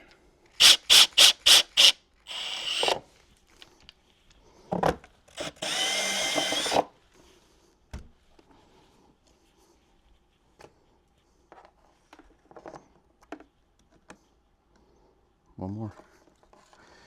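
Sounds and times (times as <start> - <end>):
power drill motor whine: 0.6 - 3.0, 5.3 - 6.9.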